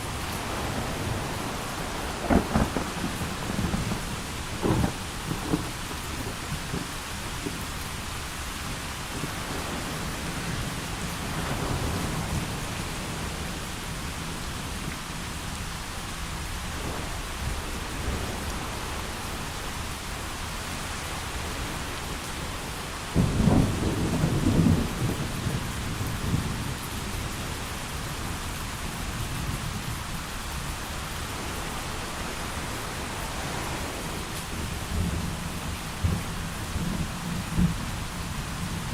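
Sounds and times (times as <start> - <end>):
heavy rain: 0.0 - 38.9
thunder clap and rumble: 0.0 - 38.9.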